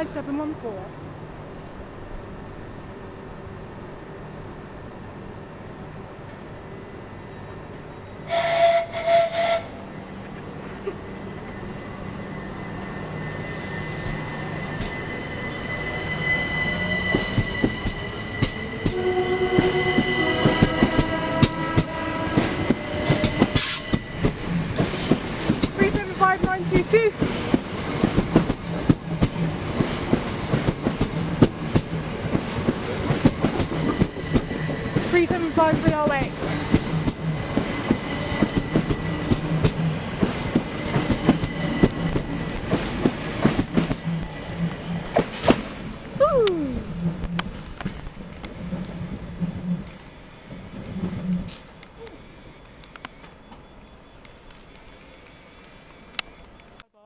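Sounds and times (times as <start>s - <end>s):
electric train whine: 0.0s - 56.9s
train horn blasts: 8.2s - 10.0s, 12.2s - 27.1s.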